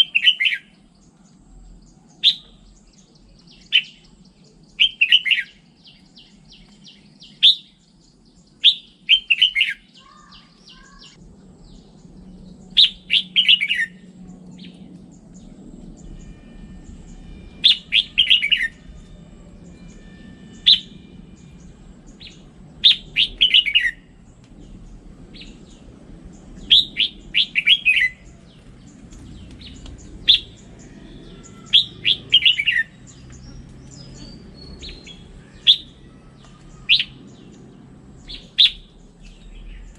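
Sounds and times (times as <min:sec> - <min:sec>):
faint low hum: 0:09.9 - 0:39.9
bird singing high notes: 0:12.7 - 0:24.3, 0:26.6 - 0:28.7, 0:29.6 - 0:39.0.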